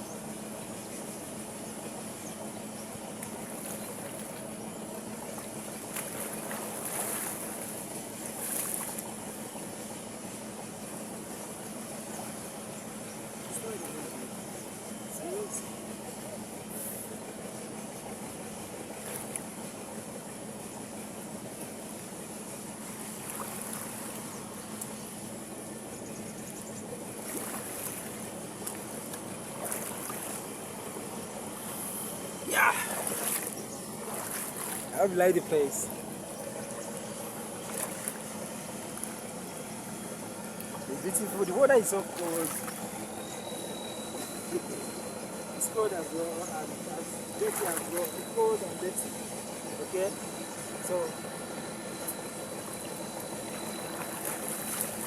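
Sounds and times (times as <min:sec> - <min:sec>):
low hum: 0:00.0 - 0:55.0
water splashing and swirling: 0:03.2 - 0:09.5, 0:19.0 - 0:19.5, 0:22.8 - 0:24.7, 0:27.0 - 0:39.4, 0:40.5 - 0:43.0, 0:47.2 - 0:48.8, 0:52.6 - 0:55.0.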